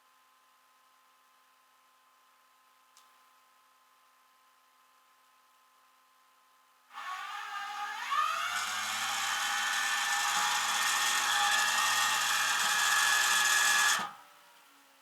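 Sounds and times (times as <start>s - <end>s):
small electric motor whirring: 7.0s - 14.2s.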